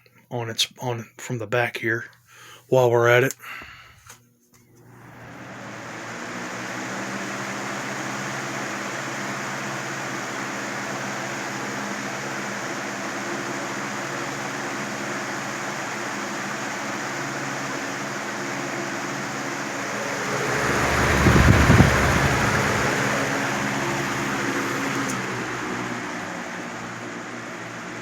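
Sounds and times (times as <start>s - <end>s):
fan motor hum: 3.4s - 28.0s
box fan blowing air: 4.7s - 28.0s
deep rush of air: 19.6s - 26.8s.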